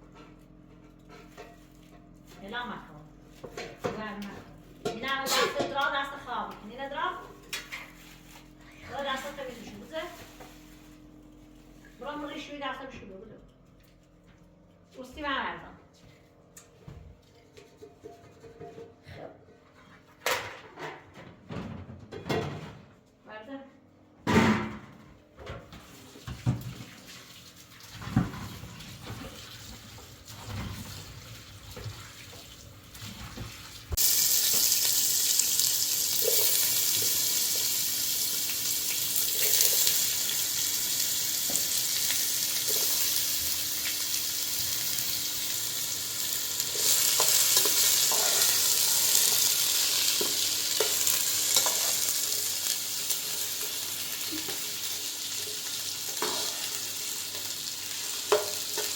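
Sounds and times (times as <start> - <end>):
food frying in hot oil: 26.9 - 58.9.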